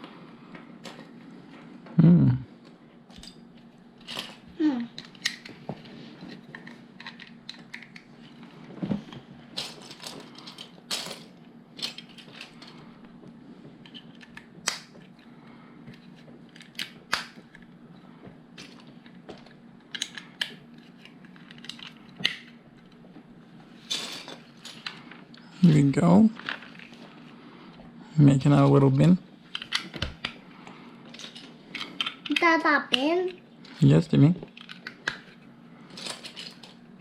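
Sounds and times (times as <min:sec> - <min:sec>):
faint low hum: 0:00.0 - 0:37.0.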